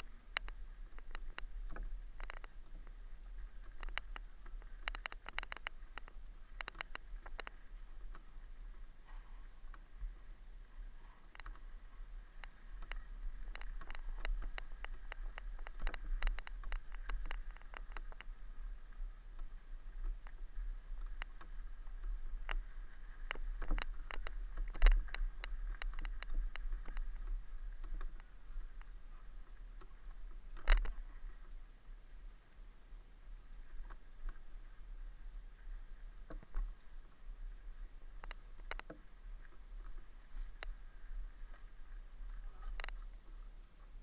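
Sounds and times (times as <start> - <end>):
clicks and rattles: 0.0 - 8.3, 11.0 - 11.6, 12.4 - 18.4, 22.2 - 29.0, 29.8 - 31.2, 38.2 - 39.1, 42.2 - 43.2.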